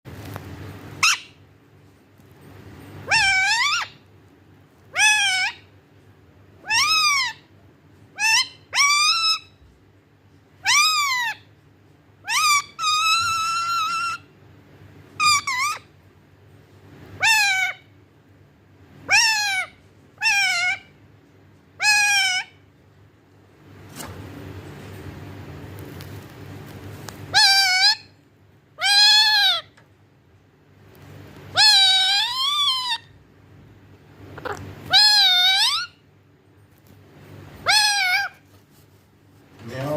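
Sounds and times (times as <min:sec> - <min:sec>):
parrot calling maa: 0:01.0 - 0:01.4, 0:03.0 - 0:04.0, 0:04.9 - 0:05.7, 0:06.6 - 0:07.5, 0:08.1 - 0:09.6, 0:10.6 - 0:11.5, 0:12.2 - 0:14.3, 0:15.2 - 0:15.9, 0:17.2 - 0:17.9, 0:19.0 - 0:21.0, 0:21.8 - 0:22.6, 0:27.3 - 0:28.2, 0:28.8 - 0:29.8, 0:31.5 - 0:33.2, 0:34.3 - 0:36.0, 0:37.6 - 0:38.5.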